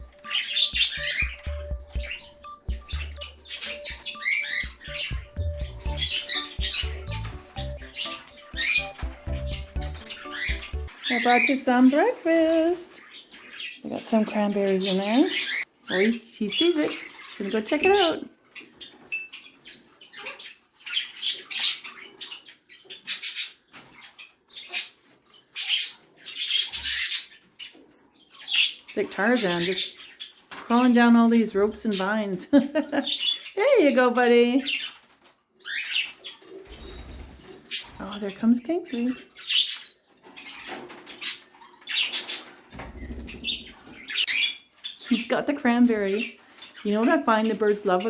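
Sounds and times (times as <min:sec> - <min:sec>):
wings flapping and rustling: 0:36.5 - 0:38.2, 0:42.0 - 0:44.0.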